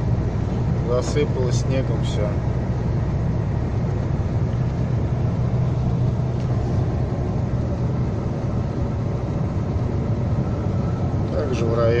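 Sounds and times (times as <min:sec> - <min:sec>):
road noise inside cab: 0:00.0 - 0:12.0
truck diesel engine drone: 0:00.0 - 0:12.0.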